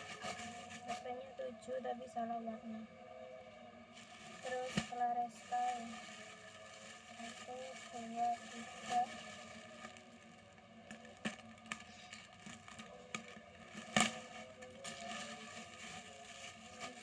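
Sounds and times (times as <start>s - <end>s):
faint steady hum: 0.0s - 17.0s
plastic packaging crinkles and taps: 4.0s - 17.0s.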